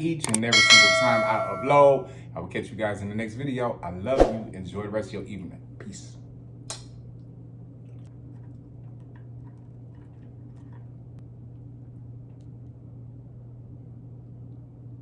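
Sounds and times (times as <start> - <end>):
low hum: 0.3 - 2.2.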